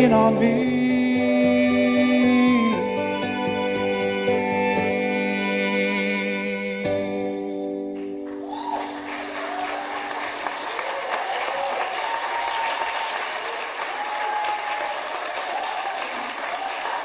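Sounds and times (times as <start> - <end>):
audience applause: 8.0 - 17.0.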